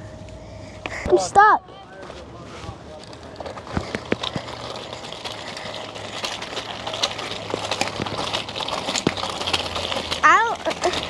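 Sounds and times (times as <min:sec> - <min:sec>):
toy wheels clicking and rattling: 0:02.8 - 0:11.0.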